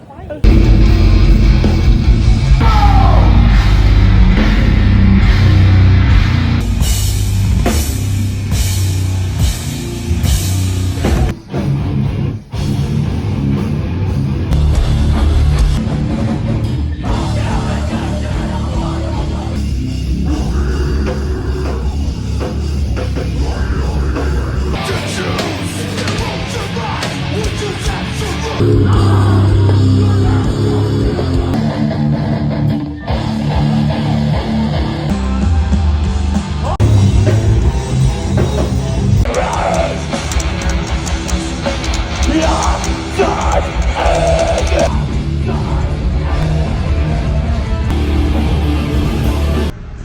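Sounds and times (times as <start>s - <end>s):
drum kit: 0.4s - 50.0s
heavy metal music: 0.4s - 50.0s.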